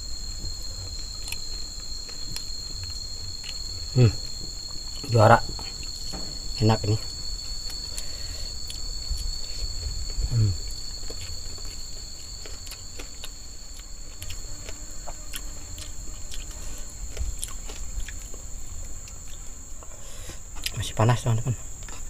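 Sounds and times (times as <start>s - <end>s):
forest insects droning: 0.0s - 22.0s
eating crunches and clicks: 0.9s - 5.1s, 7.6s - 18.4s.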